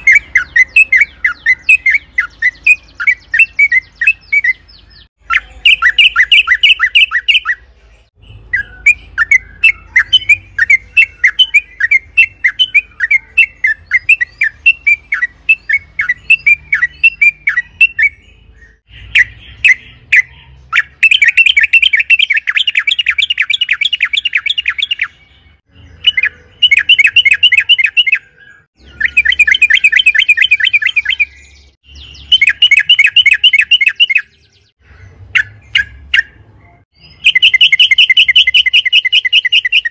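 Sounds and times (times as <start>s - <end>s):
bulbul chattering calls: 0.0s - 7.6s.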